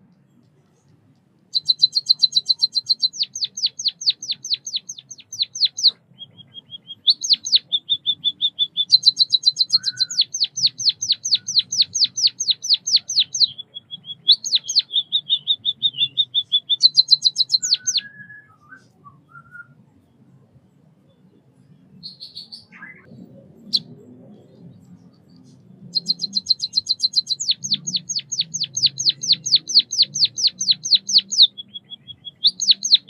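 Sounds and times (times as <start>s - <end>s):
small bird singing: 0.0s - 33.0s.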